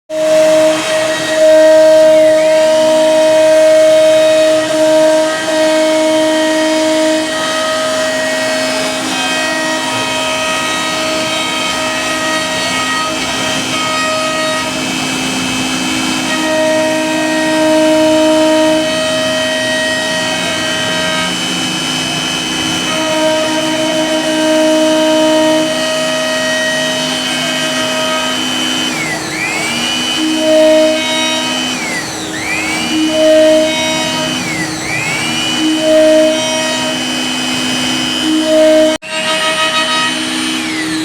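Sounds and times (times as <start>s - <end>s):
high spindle whine: 0.1s - 41.0s
motor hums: 0.1s - 41.0s.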